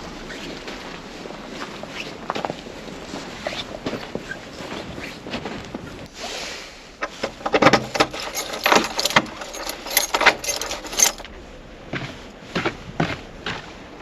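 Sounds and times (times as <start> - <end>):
irregular clicks and clinks: 7.2 - 11.3.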